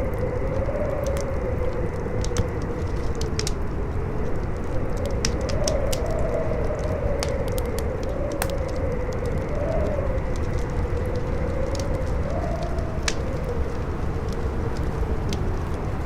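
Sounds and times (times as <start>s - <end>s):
howling wind: 0.0s - 16.0s
campfire crackling with sharp pops: 7.0s - 9.6s, 10.3s - 16.0s.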